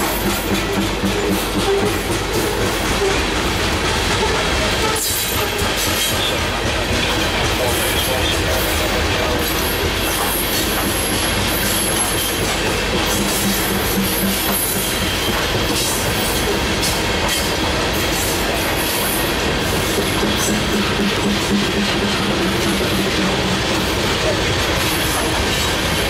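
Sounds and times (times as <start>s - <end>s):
clickety-clack over rail joints: 0.0s - 26.0s
freight train wheels rumbling: 0.0s - 26.0s
thin high wheel squeal: 4.2s - 6.4s.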